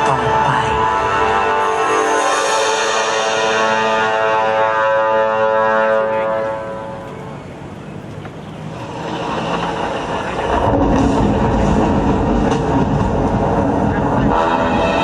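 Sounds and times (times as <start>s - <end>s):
synthesizer chords over loudspeakers: 0.0s - 7.8s
low rumbling sound effect: 8.7s - 15.0s.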